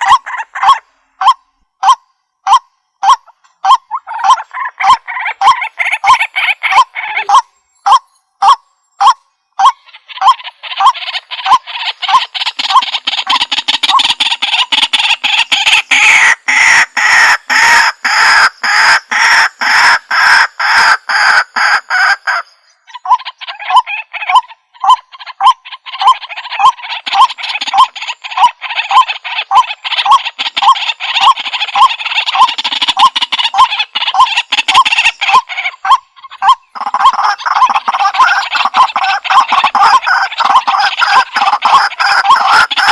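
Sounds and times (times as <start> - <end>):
bird calling harsh kwak notes: 0.0 - 42.9
rough croaking chatter: 23.0 - 42.9.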